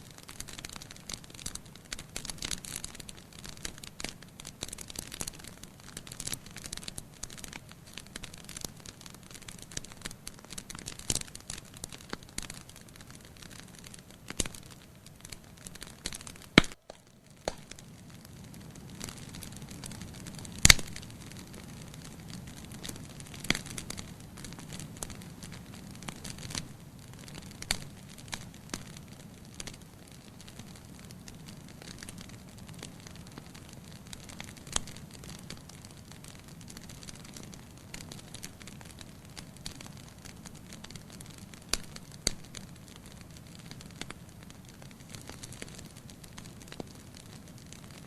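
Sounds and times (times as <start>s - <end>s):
wood fire crackling: 0.0s - 48.0s
loud sharp fire pops: 16.0s - 21.7s.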